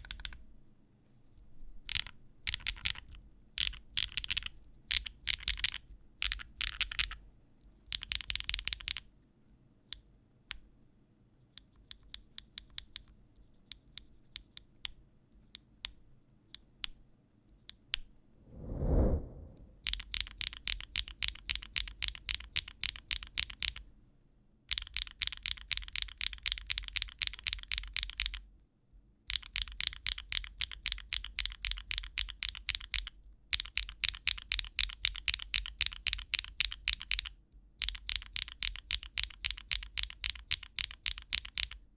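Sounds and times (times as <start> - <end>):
typing on mechanical keyboard: 0.0 - 0.4, 1.9 - 7.2, 7.9 - 9.0, 19.9 - 23.8, 24.7 - 28.4, 29.3 - 41.8.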